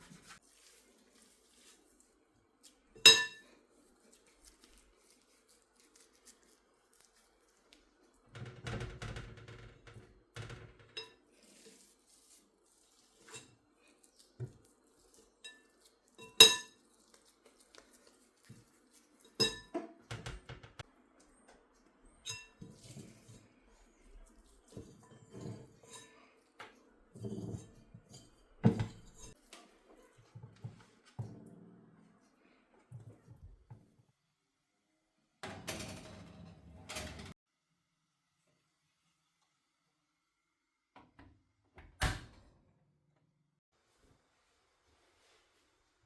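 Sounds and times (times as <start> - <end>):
dishes and cutlery clinking: 3.0 - 3.6, 15.4 - 17.2, 19.0 - 20.3, 22.2 - 23.4, 24.7 - 30.1.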